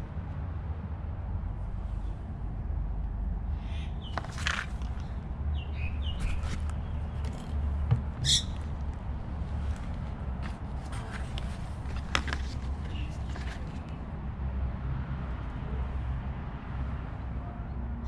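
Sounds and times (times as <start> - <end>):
bird chirps: 8.2 - 8.6.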